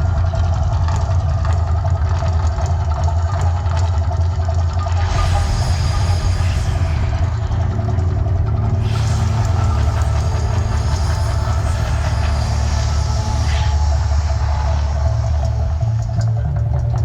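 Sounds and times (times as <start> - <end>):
deep rumble: 4.8 - 17.0.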